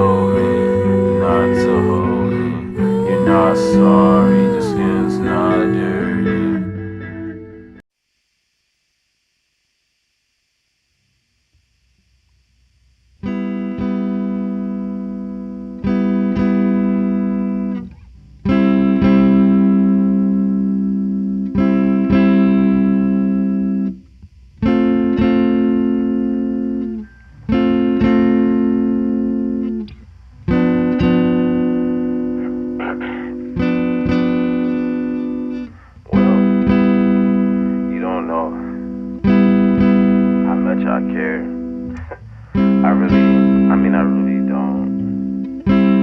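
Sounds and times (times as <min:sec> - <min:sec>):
guitar chords ringing: 0:00.0 - 0:07.8, 0:13.3 - 0:24.0, 0:24.6 - 0:46.0.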